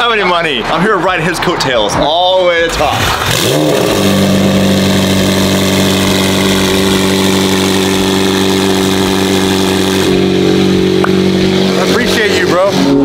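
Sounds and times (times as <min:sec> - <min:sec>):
car engine idling: 0:02.7 - 0:13.0.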